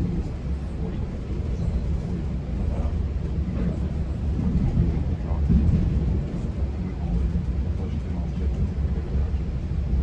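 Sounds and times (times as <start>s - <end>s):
train rumbling on track: 0.0s - 10.0s.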